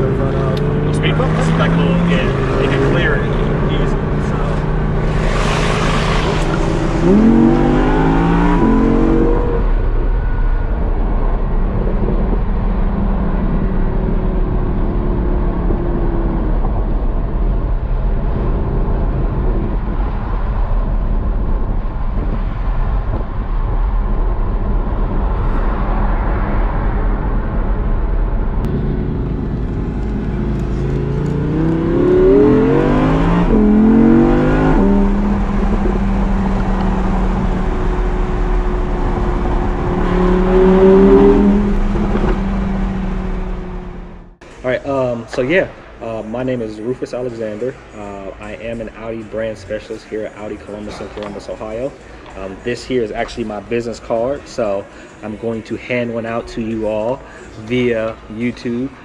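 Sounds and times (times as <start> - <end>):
car engine accelerating: 0.0 - 44.8
road hum: 0.0 - 59.0.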